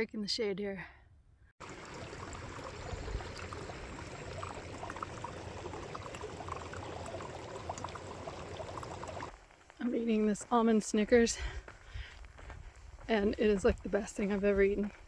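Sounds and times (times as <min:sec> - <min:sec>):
water flowing in a small stream: 0:01.6 - 0:09.4.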